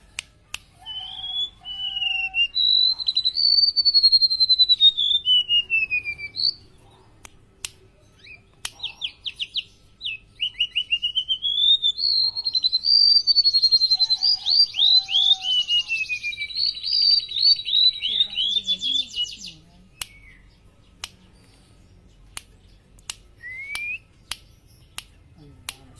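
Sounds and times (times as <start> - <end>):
bird singing whistles and trills: 0.7 - 6.9, 8.0 - 21.0, 22.8 - 25.2
sharp clicks: 20.0 - 20.3, 22.3 - 25.9.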